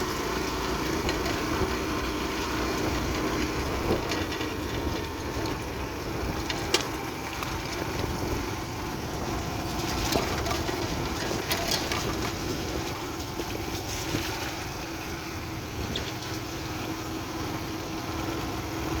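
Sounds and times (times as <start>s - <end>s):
motorbike engine running: 0.0s - 19.0s
wind rumble on microphone: 0.0s - 19.0s.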